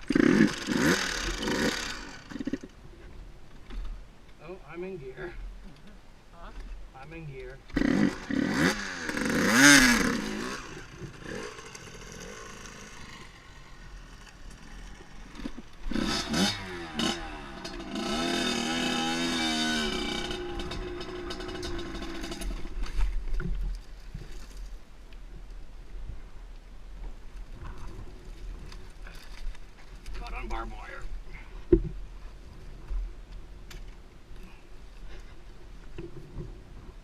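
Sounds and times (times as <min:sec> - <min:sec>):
dirt bike engine revving: 0:00.0 - 0:02.7, 0:07.7 - 0:22.8.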